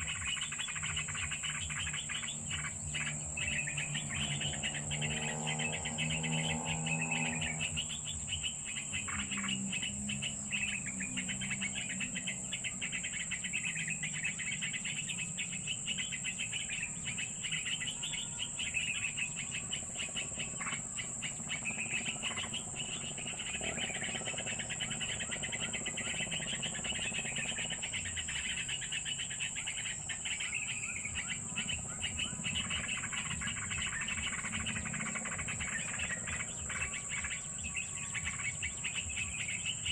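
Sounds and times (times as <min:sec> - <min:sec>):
birds chirping: 0:00.0 - 0:39.9
high insect drone: 0:00.0 - 0:39.9.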